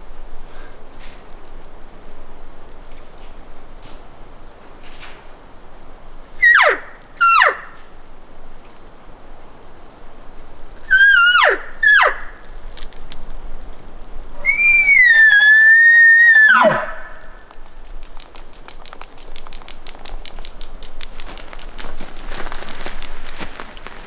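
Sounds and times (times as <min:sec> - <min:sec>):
elk bugling: 0:06.4 - 0:07.8, 0:10.8 - 0:12.5, 0:14.3 - 0:24.0
rustling: 0:16.7 - 0:24.0
quick clicks: 0:17.5 - 0:24.0.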